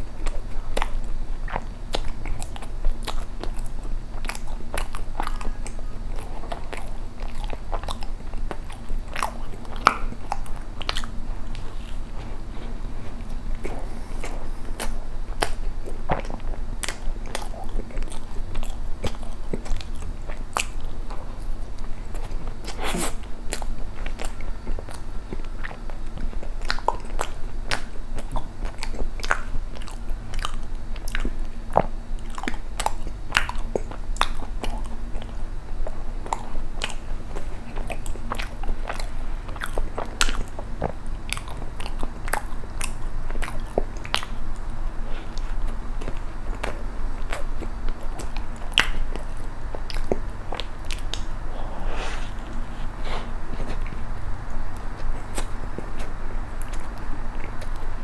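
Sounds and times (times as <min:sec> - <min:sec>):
person chewing bread: 0:00.0 - 0:58.0
mouth clicks and smacks: 0:13.1 - 0:51.4.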